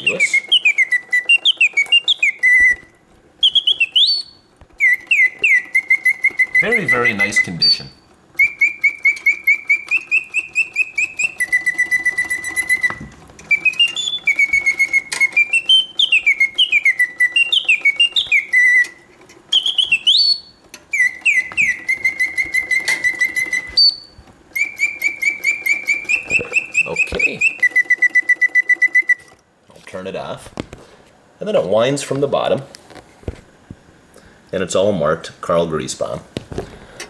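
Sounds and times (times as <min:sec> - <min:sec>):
mechanical bird whistling chirps: 0:00.0 - 0:29.4.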